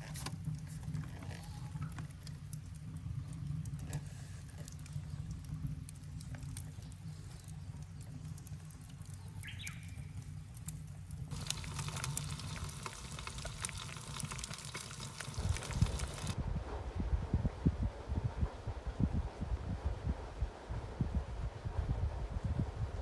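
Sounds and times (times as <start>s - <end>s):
wood fire roaring and crackling: 11.3s - 23.0s.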